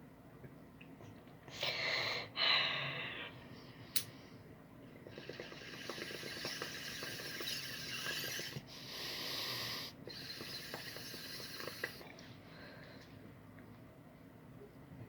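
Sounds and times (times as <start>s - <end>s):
water bong bubbling: 4.8s - 12.1s.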